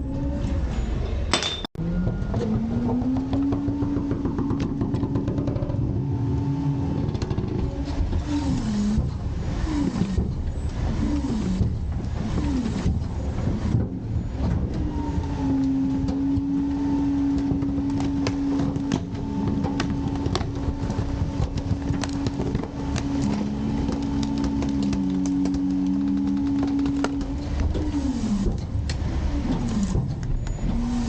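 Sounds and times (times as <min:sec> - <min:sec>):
lower machine tone: 0:01.8 - 0:08.0, 0:12.5 - 0:28.5
hydraulic pump whine: 0:01.8 - 0:31.0
packer mechanism clanks and knocks: 0:17.3 - 0:30.8.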